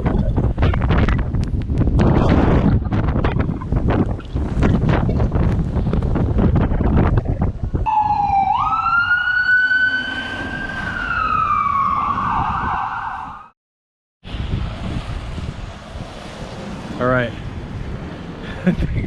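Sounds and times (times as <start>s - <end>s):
wind buffeting microphone: 0.0s - 13.4s, 14.2s - 19.0s
emergency vehicle siren wailing: 7.8s - 13.5s.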